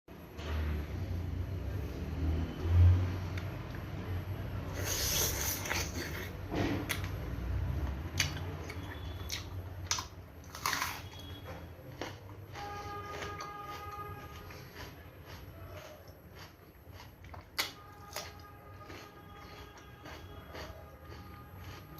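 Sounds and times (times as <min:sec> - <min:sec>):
person chewing food: 0:04.7 - 0:21.9.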